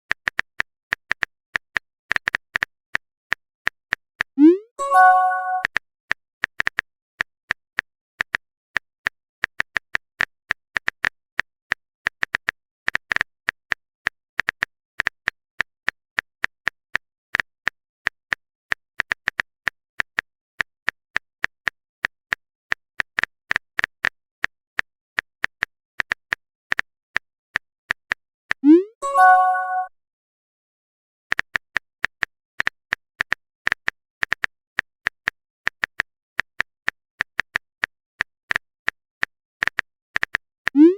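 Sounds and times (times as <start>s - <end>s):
phone keyboard typing clicks: 3.9s - 5.7s.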